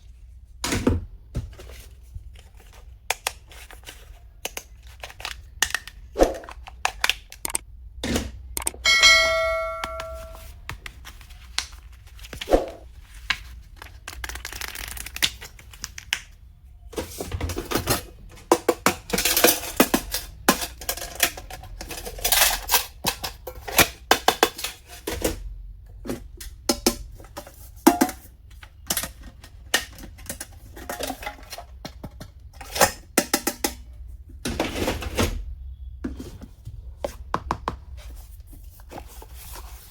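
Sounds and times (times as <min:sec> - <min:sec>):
small clicks and taps: 0:06.9 - 0:07.6, 0:08.6 - 0:08.8
bell-like metallic ring: 0:08.8 - 0:10.4
plastic packaging rustling: 0:10.4 - 0:16.2.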